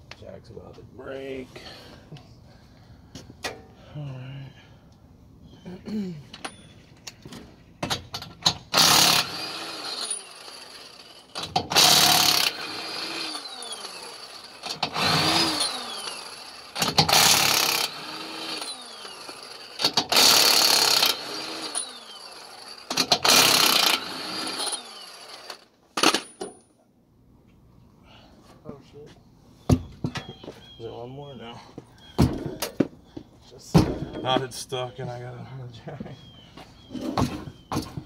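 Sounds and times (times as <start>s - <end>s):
impact wrench hammering: 16.8s - 22.1s, 22.9s - 24.8s.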